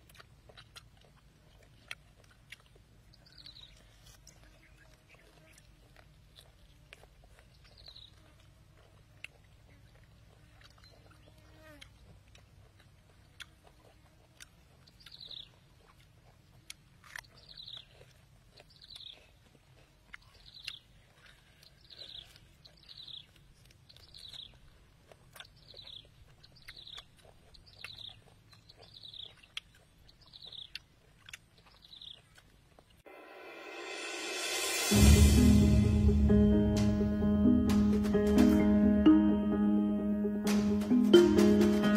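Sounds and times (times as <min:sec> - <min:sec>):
chewing clicks and crunches: 0:00.0 - 0:33.0.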